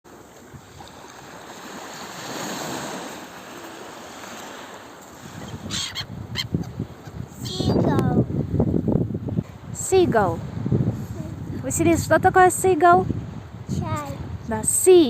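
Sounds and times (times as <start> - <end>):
waves washing onto shore: 0.1 - 15.0
wind buffeting microphone: 4.3 - 15.0.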